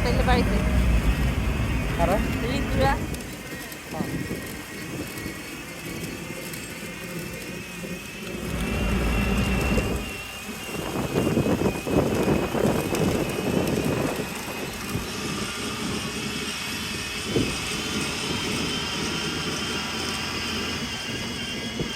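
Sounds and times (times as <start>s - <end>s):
deep rumble: 0.0s - 4.4s, 8.3s - 19.5s
vehicle engine running: 0.0s - 21.9s.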